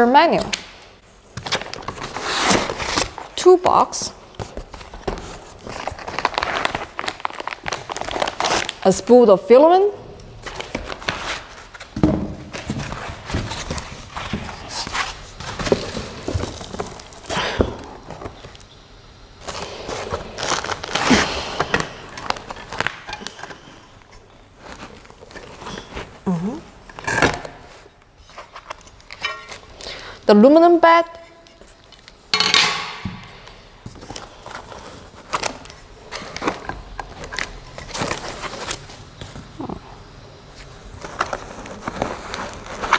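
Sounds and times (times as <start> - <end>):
packaging rustling: 1.2 - 3.4, 4.2 - 8.9, 10.3 - 18.6, 19.3 - 29.8, 33.5 - 39.7, 40.4 - 42.9
knocks and thumps of parts: 11.9 - 14.5, 32.3 - 34.0.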